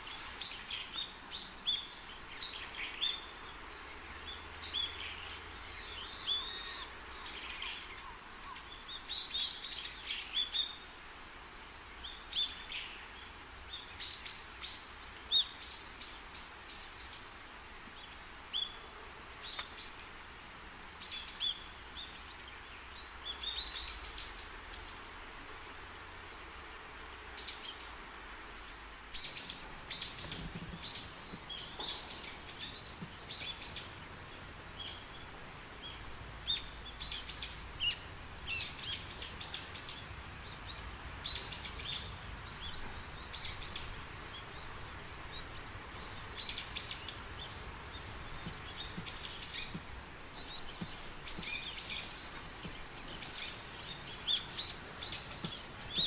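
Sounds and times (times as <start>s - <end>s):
low background noise: 0.0s - 56.0s
birds chirping: 28.6s - 56.0s.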